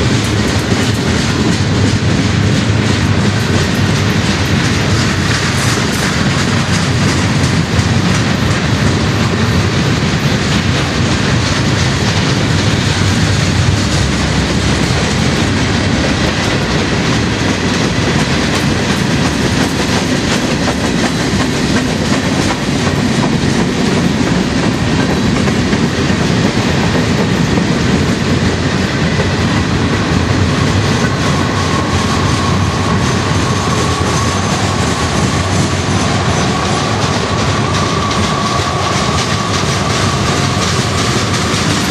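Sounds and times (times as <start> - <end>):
clickety-clack over rail joints: 0.0 - 41.9
train wheels rumbling on rail: 0.0 - 41.9
high wheel squeal: 31.3 - 41.2.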